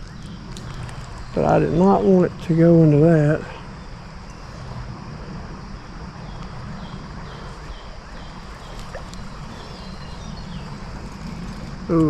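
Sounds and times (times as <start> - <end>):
creek water running: 6.4 - 12.0.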